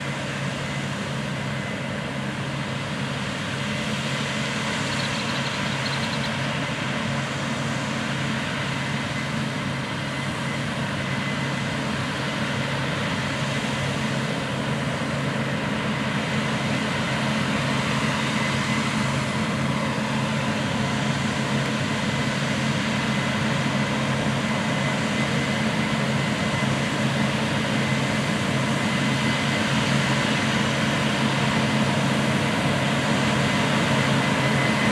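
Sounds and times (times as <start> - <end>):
harvest machinery engine drone: 0.0 - 34.9.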